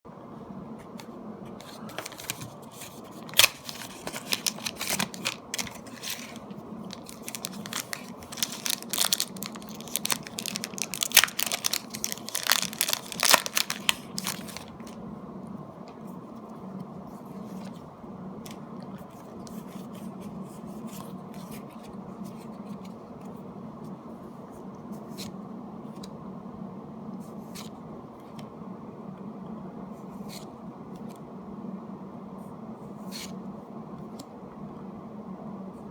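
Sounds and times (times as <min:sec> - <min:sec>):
cards being handled: 0:00.9 - 0:15.0
foil wrapper tearing and crinkling: 0:01.9 - 0:15.0.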